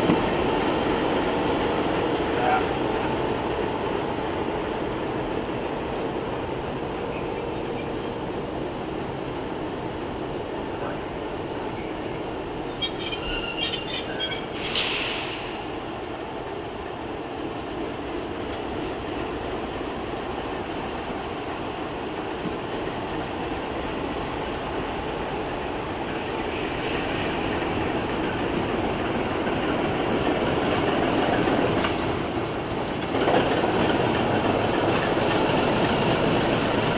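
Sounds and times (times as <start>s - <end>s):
diesel train rumbling past: 0.0s - 36.9s
high wheel squeal: 0.8s - 1.8s, 6.0s - 15.4s
short air hiss: 14.6s - 15.6s.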